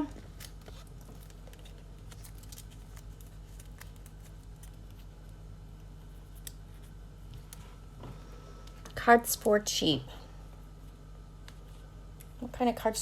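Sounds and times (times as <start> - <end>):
trading cards clicking and rustling: 0.0 - 5.4
low electrical hum: 0.0 - 13.0.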